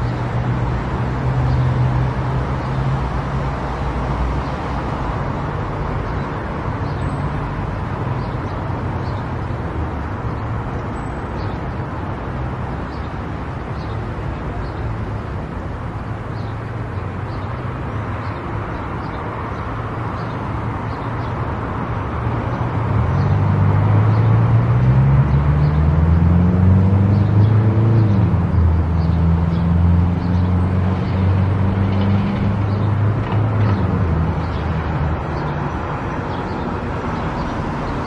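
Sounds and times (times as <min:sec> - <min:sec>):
car engine accelerating: 0:23.3 - 0:33.9.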